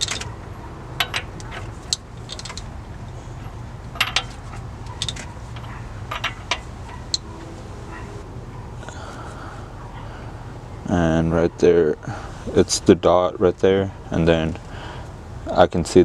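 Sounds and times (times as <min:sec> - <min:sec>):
sharp metallic clicks: 0:00.0 - 0:00.4, 0:01.0 - 0:03.2, 0:04.0 - 0:07.3
steady low hum: 0:00.0 - 0:16.0.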